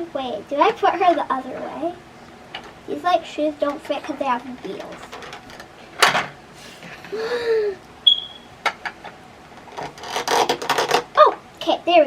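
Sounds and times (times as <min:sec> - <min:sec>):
child humming: 0:07.1 - 0:07.8.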